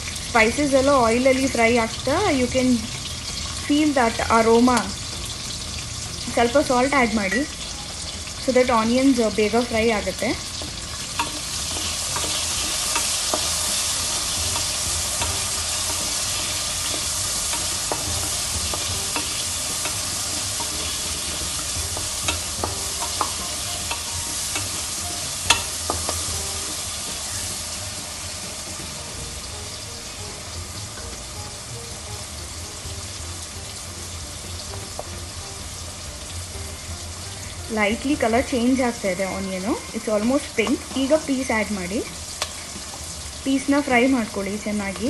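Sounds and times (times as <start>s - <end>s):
onions sizzling in oil: 0.0s - 45.0s.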